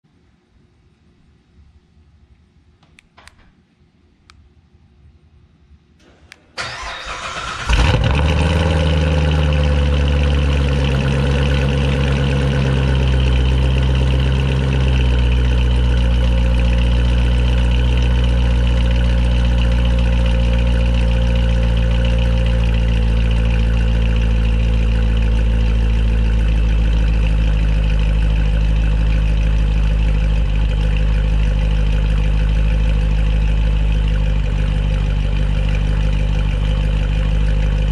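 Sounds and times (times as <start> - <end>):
starter motor cranking: 6.6 - 8.3
car engine revving and idling: 6.6 - 37.9.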